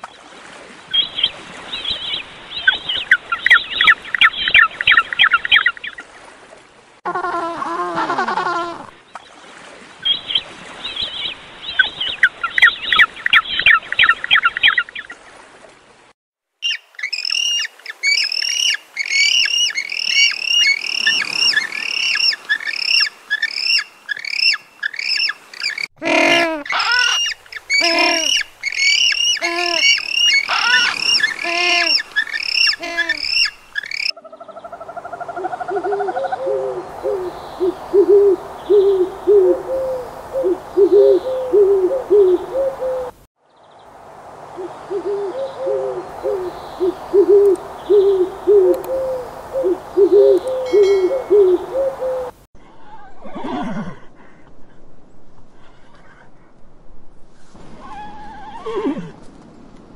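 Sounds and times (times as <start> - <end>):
bird calls rising and falling: 16.6 - 25.9, 26.6 - 43.1, 44.6 - 52.3
rapid short bird calls: 16.6 - 34.1
low hooting bird call: 16.6 - 43.2, 44.5 - 52.4.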